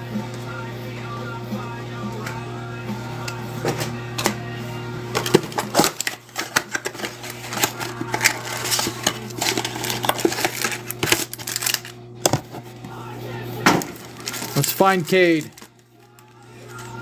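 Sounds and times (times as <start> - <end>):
steady low hum: 0.0 - 17.0
wrapper and cards crinkling: 5.2 - 12.0, 13.8 - 17.0.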